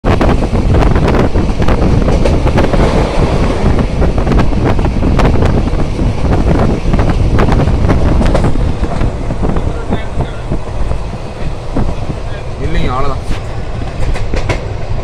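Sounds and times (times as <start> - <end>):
train carriage rumble: 0.0 - 15.0
wind buffeting microphone: 0.0 - 15.0
wheels clacking over rail joints: 0.8 - 15.0.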